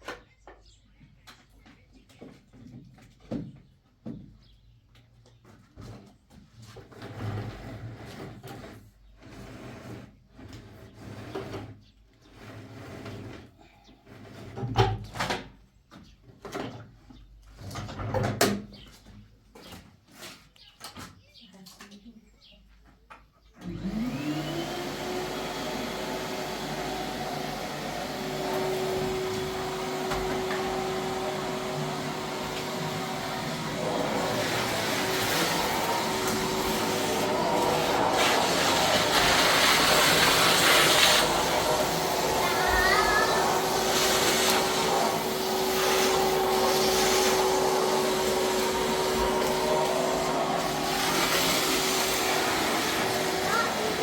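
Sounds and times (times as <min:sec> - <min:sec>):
small motor whining: 0:23.6 - 0:54.0.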